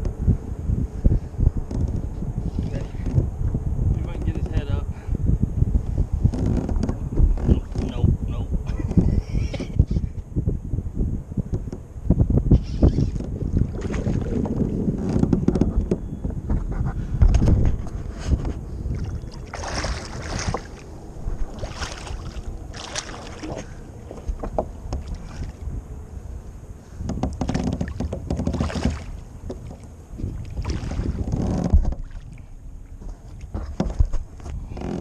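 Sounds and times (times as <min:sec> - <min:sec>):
wind rumble on microphone: 0:00.0 - 0:35.0
water splashing: 0:13.5 - 0:14.8, 0:18.9 - 0:24.2, 0:27.5 - 0:32.5
knocking on kayak: 0:27.0 - 0:29.6.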